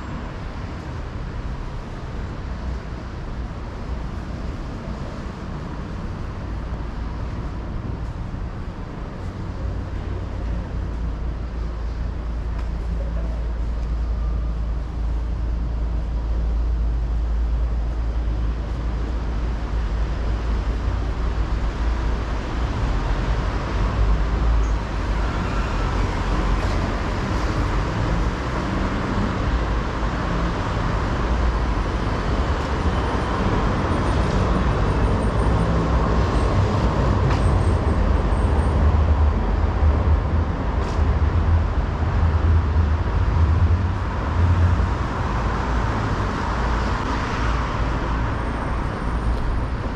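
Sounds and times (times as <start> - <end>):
cars and buses passing: 0.0 - 49.9.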